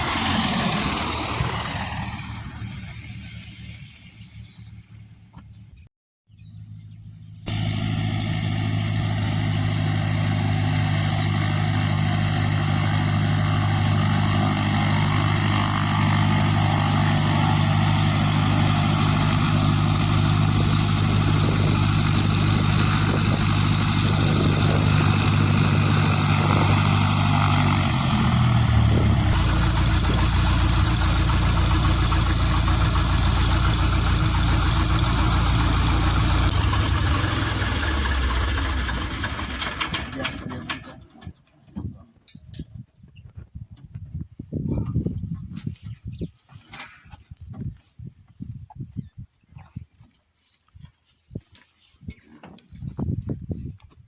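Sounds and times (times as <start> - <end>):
rushing wind: 0.0 - 4.5, 7.5 - 40.1
aircraft engine and propeller: 0.0 - 5.4, 6.5 - 41.3.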